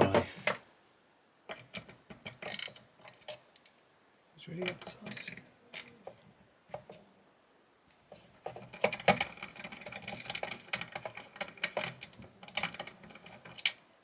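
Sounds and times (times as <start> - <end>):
small metal tools clattering: 1.5 - 3.7, 4.6 - 6.2, 8.4 - 13.8.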